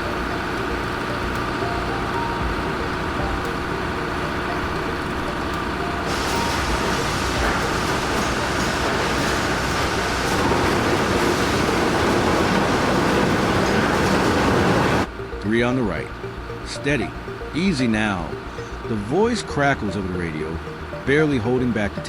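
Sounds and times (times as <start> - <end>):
heavy diesel engine under load: 0.0 - 15.1
rolling mechanical noise: 0.0 - 22.0.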